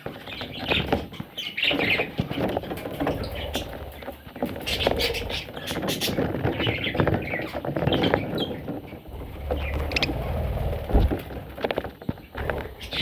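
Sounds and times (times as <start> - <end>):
bird chicks chirping: 0.0 - 13.0
rustling and scratching: 0.0 - 13.0
low thump: 10.9 - 11.3.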